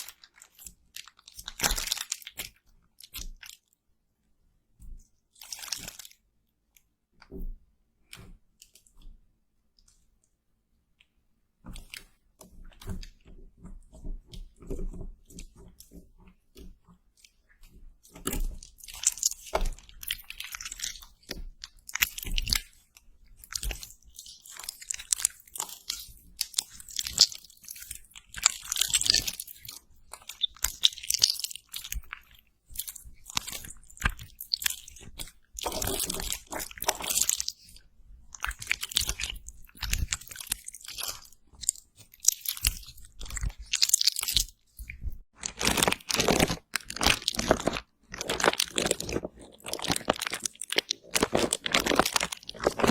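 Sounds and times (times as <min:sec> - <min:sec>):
close crackly crunching: 0:00.0 - 0:03.7, 0:05.4 - 0:06.2, 0:18.0 - 0:52.9.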